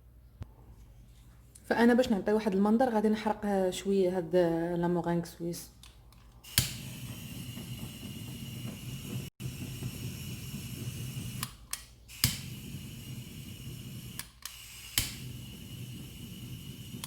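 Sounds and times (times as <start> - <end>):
blowtorch flame hissing: 6.4 - 17.0.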